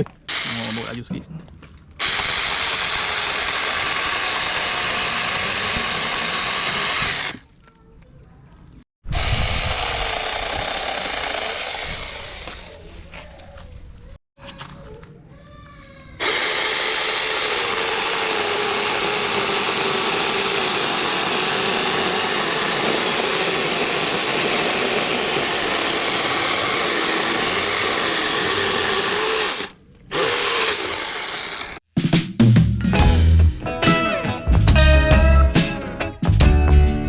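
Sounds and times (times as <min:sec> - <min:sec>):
electric chainsaw cutting wood: 0:00.0 - 0:01.0, 0:02.0 - 0:07.4, 0:09.1 - 0:12.8, 0:16.2 - 0:31.8.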